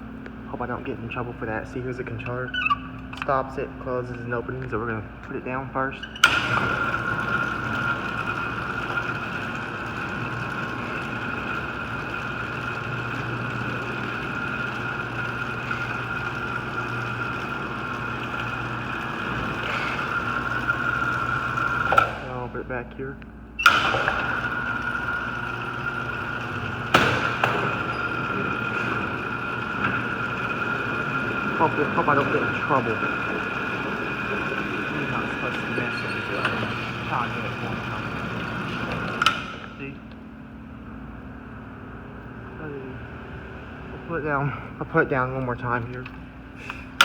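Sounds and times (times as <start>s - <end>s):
garage door opener motor whining: 0.0s - 47.0s
sharp knocks: 26.9s - 27.9s.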